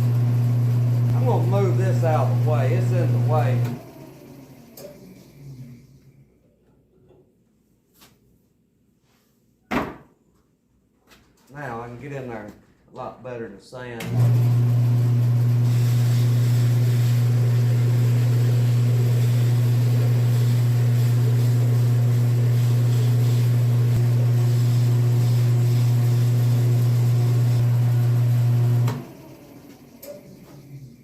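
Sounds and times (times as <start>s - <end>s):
wood lathe motor running: 0.0s - 5.8s, 14.1s - 30.9s
spinning workpiece being sanded: 19.1s - 27.6s.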